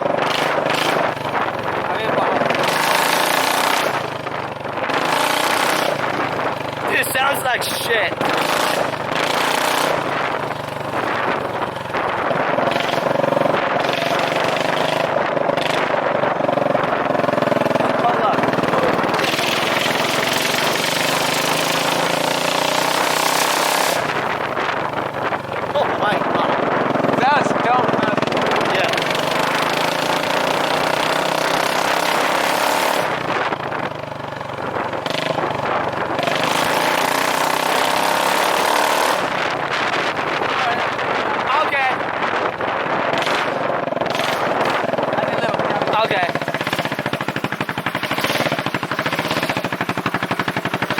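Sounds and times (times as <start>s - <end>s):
scooter engine with loud exhaust: 0.0s - 50.9s.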